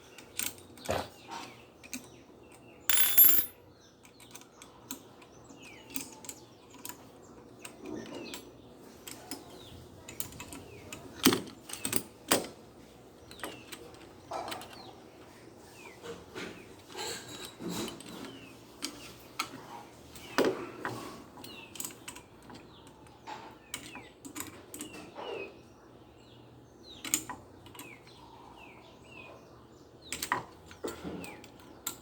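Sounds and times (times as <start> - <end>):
ringing metallic clatter: 2.9 - 3.6
metal parts clicking and knocking: 2.9 - 4.4.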